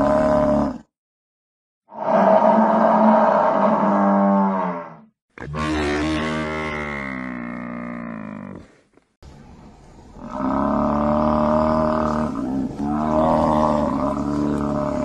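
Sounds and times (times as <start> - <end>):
water buffalo lowing: 10.2 - 15.0.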